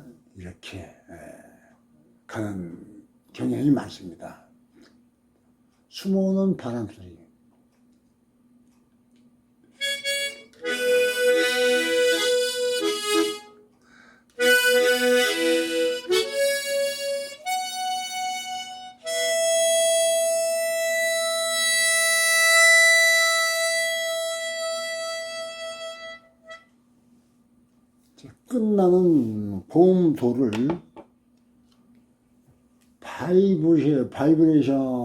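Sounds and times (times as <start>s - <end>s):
harmonica playing chords: 9.7s - 26.8s.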